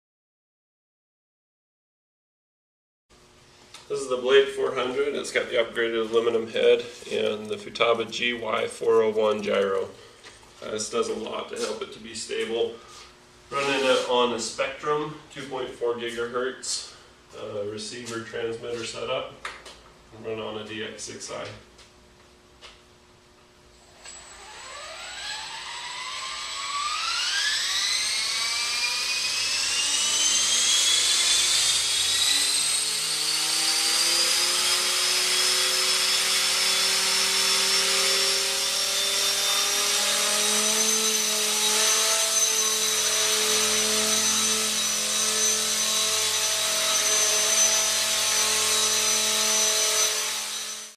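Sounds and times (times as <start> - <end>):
rc helicopter motor whine: 23.8 - 50.9.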